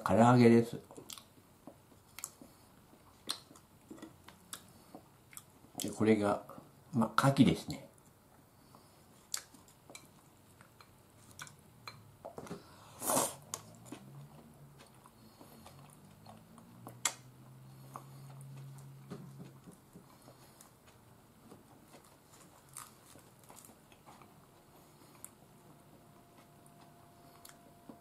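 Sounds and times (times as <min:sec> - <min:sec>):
chewing fried food: 0:00.8 - 0:06.0, 0:08.0 - 0:12.4, 0:13.1 - 0:28.0
loud crunching bite: 0:22.6 - 0:23.8.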